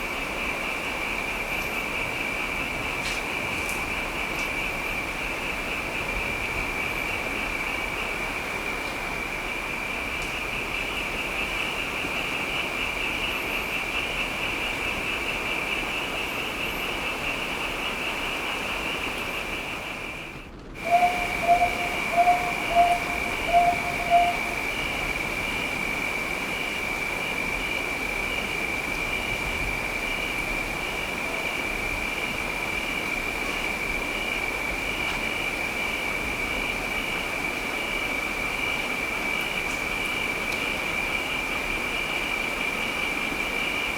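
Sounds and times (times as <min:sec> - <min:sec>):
rain hiss: 0:00.0 - 0:43.9
short low tonal calls: 0:20.8 - 0:25.2.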